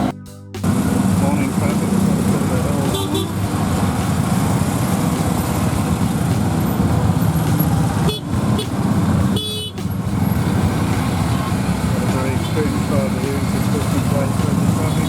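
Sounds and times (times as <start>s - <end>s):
auto-rickshaw engine: 0.0s - 15.0s
road noise: 0.0s - 15.0s
vehicle horn toots: 2.8s - 3.5s, 8.0s - 9.9s.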